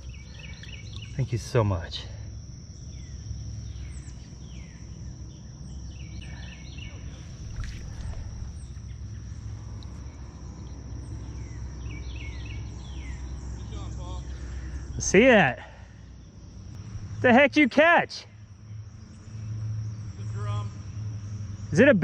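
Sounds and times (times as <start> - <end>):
bird chirps: 0.0 - 1.5, 2.8 - 14.9
insect drone: 0.0 - 22.0
low rumble: 3.3 - 11.8.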